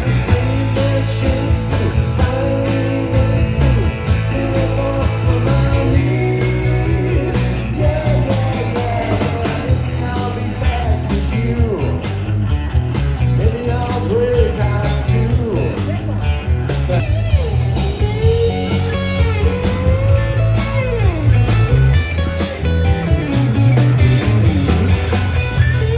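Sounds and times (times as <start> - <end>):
person singing: 0.0 - 12.2, 13.4 - 15.9
bass line: 0.0 - 25.9
guitar: 0.0 - 25.9
live band playing country-rock: 0.0 - 25.9.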